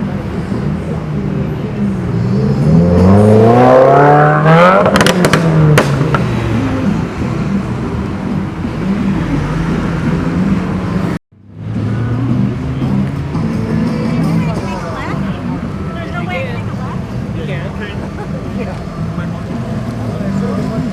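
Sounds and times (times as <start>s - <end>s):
car engine revving past: 1.8s - 14.2s.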